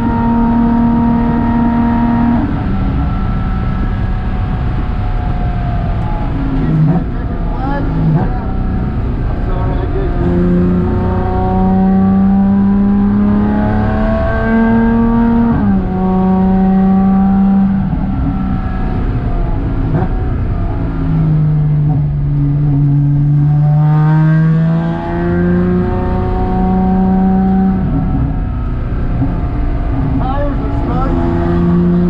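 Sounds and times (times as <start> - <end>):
car engine from inside cabin: 0.0 - 32.0
road and tyre noise: 0.0 - 32.0.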